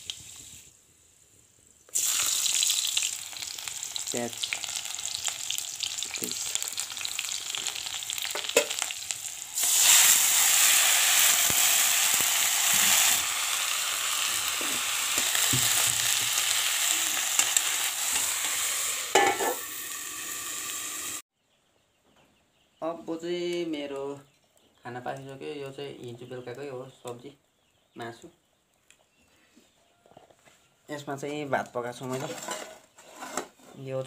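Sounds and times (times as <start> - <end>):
onion sizzling in hot oil: 0.0 - 21.2
metal lid clattering onto pan: 8.4 - 8.8, 19.1 - 19.6.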